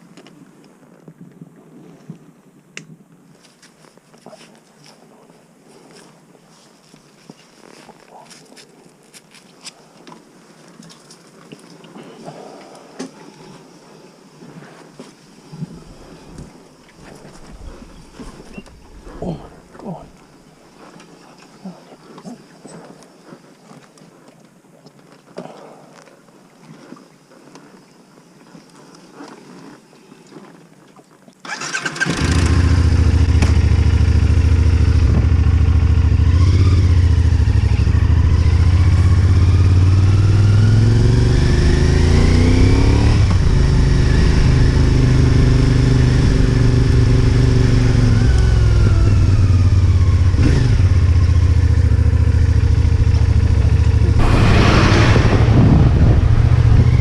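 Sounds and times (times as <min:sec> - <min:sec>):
motorcycle engine starting and running: 0:31.4 - 0:57.0.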